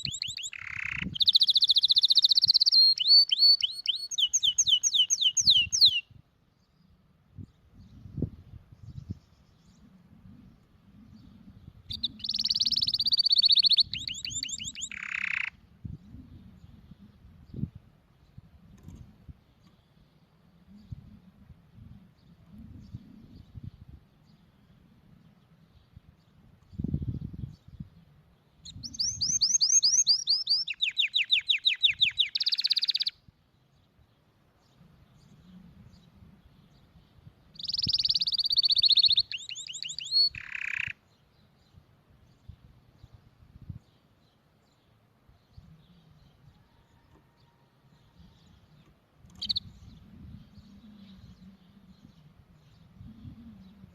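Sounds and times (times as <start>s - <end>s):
canary singing: 0.0s - 6.1s, 11.9s - 15.6s, 28.6s - 33.2s, 37.5s - 41.2s, 48.2s - 53.9s.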